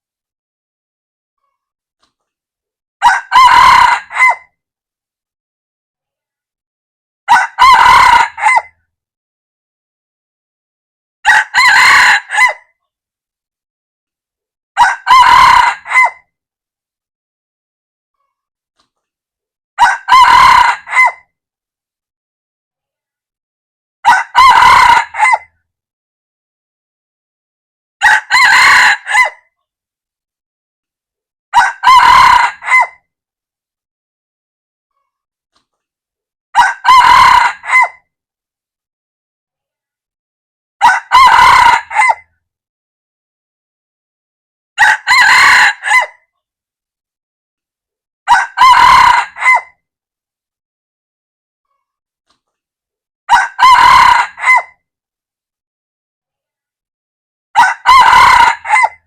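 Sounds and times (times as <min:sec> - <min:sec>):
rooster crowing: 0:03.0 - 0:04.4, 0:07.3 - 0:08.7, 0:11.2 - 0:12.6, 0:14.8 - 0:16.2, 0:19.8 - 0:21.2, 0:24.0 - 0:25.5, 0:28.0 - 0:29.4, 0:31.5 - 0:33.0, 0:36.6 - 0:38.0, 0:40.8 - 0:42.2, 0:44.8 - 0:46.2, 0:48.3 - 0:49.7, 0:53.3 - 0:54.7, 0:57.6 - 0:59.0.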